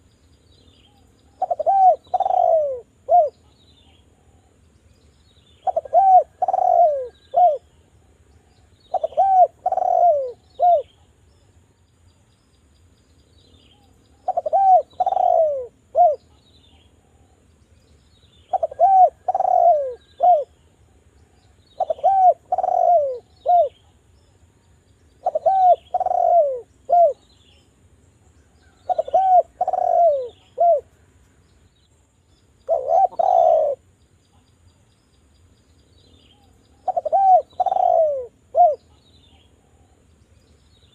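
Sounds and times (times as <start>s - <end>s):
dove cooing: 0.9s - 3.5s, 5.6s - 7.7s, 8.4s - 11.0s, 13.8s - 16.4s, 18.5s - 20.6s, 21.8s - 23.9s, 25.2s - 27.3s, 28.6s - 30.9s, 32.6s - 33.9s, 36.4s - 40.0s.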